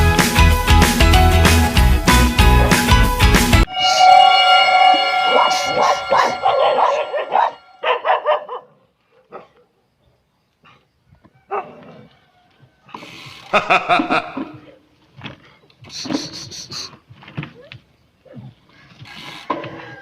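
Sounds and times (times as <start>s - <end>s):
dog barking: 6.5s - 9.8s, 11.5s - 12.0s.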